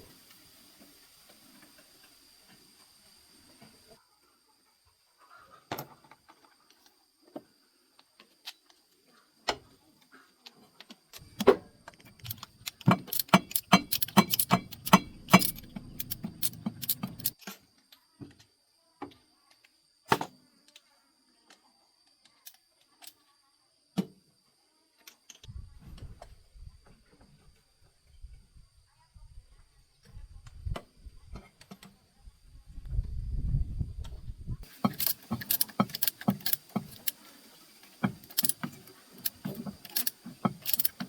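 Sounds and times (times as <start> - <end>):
metal tools clinking and rattling: 12.2 - 17.5, 34.6 - 41.0.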